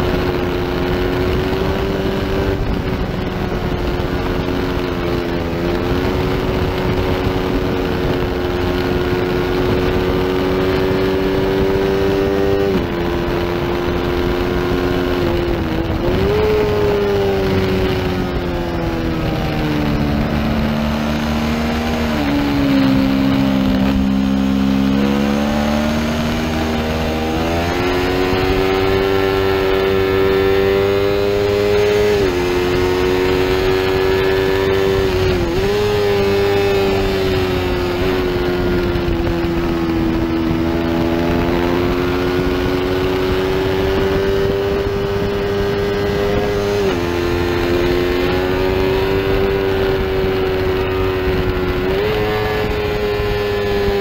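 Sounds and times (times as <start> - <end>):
racing motorcycle engine revving: 0.0 - 54.0
wind rush: 0.0 - 54.0.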